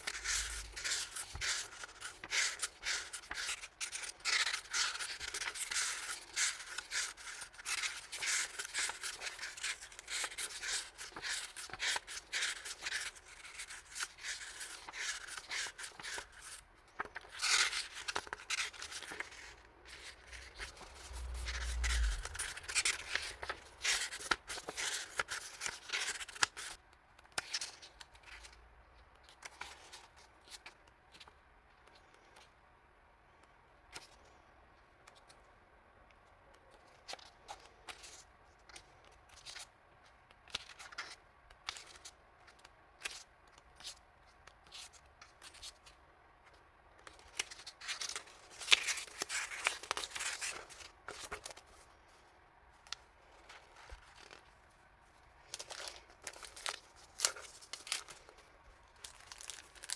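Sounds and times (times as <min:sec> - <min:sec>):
plastic packaging crinkling: 0:55.4 - 0:59.9.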